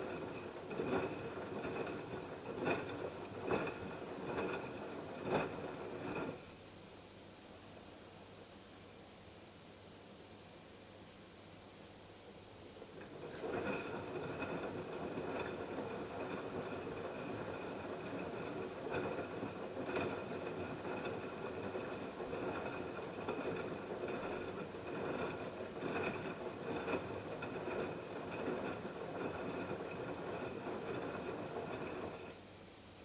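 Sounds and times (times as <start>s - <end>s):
washing machine drum tumbling: 0.0s - 6.4s, 12.8s - 32.3s
washing machine whine: 0.0s - 6.9s, 12.4s - 32.5s.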